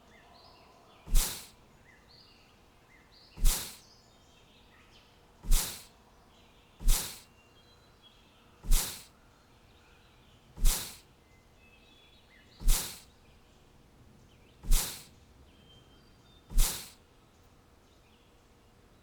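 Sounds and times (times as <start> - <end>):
faint bird chirps: 0.0 - 19.0
whoosh with low thump: 1.1 - 1.5, 3.4 - 3.8, 5.5 - 5.8, 6.8 - 7.2, 8.7 - 9.0, 10.6 - 11.0, 12.6 - 13.0, 14.6 - 15.1, 16.5 - 16.9.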